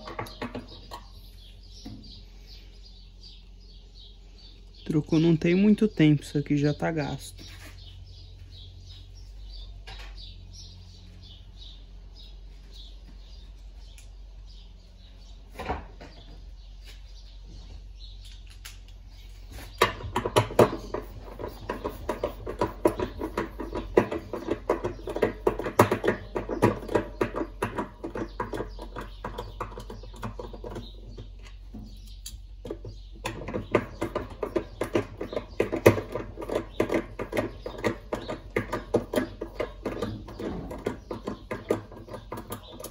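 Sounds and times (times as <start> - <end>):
tools and metal parts rattling: 0.0 - 1.9, 19.7 - 42.9.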